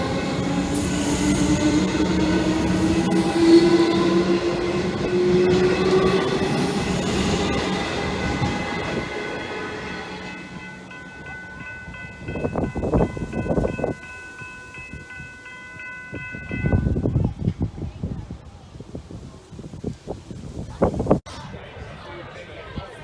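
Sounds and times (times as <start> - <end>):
pulsing high ringing: 0.0 - 17.1
train running past: 0.0 - 18.0.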